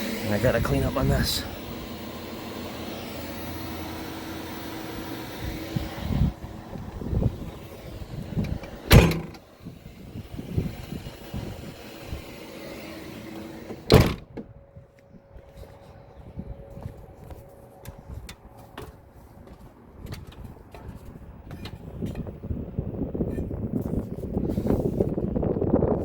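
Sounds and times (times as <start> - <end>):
air conditioner humming: 0.0 - 19.5.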